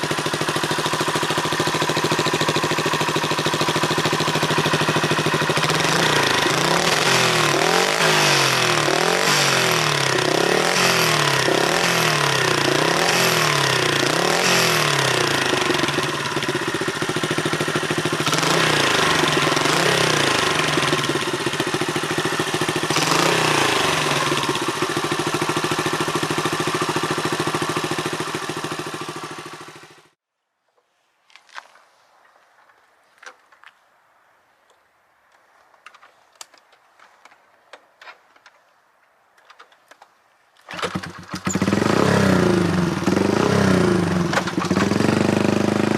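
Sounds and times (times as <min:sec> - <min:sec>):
motorcycle engine revving: 0:00.0 - 0:30.2, 0:40.7 - 0:45.9.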